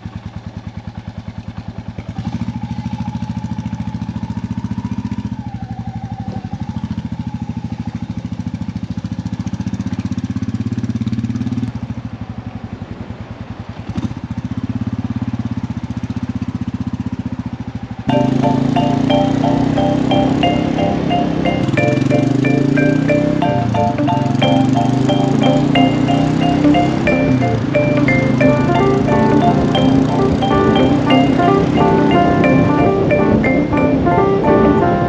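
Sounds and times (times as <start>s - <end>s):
motorcycle engine running: 18.1s - 34.2s.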